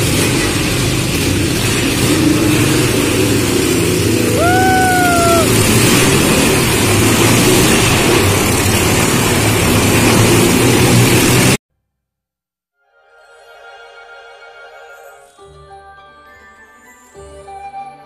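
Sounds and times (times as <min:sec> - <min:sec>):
motorcycle engines running: 0:00.0 - 0:11.6.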